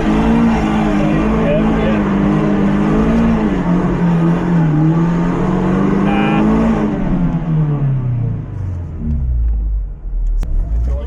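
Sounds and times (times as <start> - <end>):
car engine revving hard: 0.0 - 8.0.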